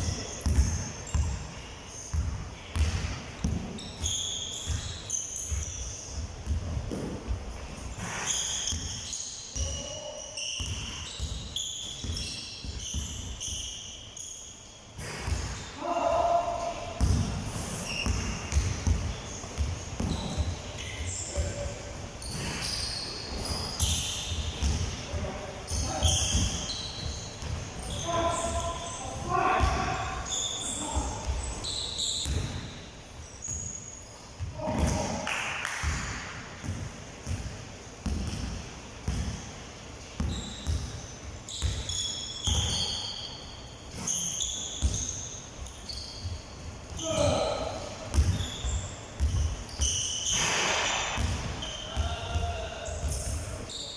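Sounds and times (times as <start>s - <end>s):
basketballs bouncing on hard floor: 0.0s - 1.4s, 2.1s - 9.0s, 10.6s - 13.6s, 17.0s - 21.6s, 22.2s - 28.6s, 32.2s - 32.7s, 34.4s - 39.5s, 40.2s - 42.9s, 43.9s - 45.2s, 46.2s - 53.4s
sneaker squeaks: 0.0s - 53.9s.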